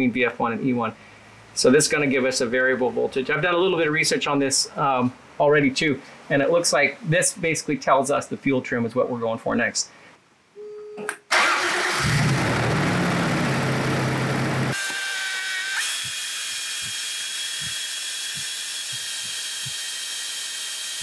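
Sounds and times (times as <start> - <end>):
car engine running fast: 12.0 - 14.8.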